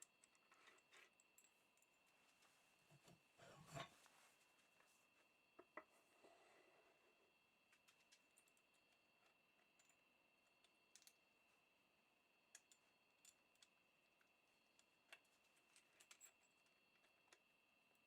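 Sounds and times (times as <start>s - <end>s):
faint scattered clicks: 7.7s - 11.3s, 12.5s - 18.0s.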